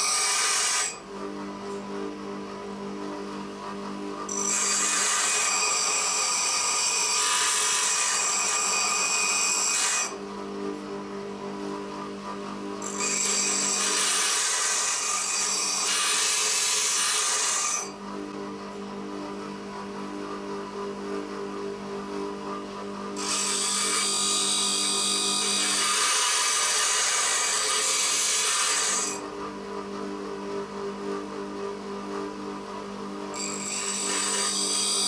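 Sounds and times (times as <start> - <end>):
grinding tool grinding steel: 0.0 - 1.0, 4.3 - 10.2, 12.8 - 18.0, 23.2 - 29.2, 33.4 - 35.0.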